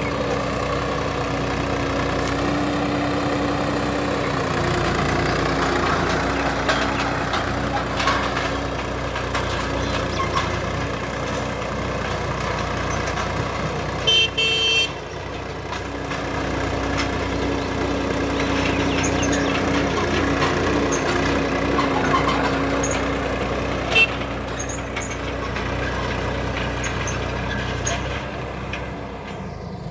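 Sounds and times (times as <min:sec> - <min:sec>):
tractor diesel engine running: 0:00.0 - 0:29.9
tractor horn toot: 0:14.0 - 0:15.1, 0:23.9 - 0:24.3.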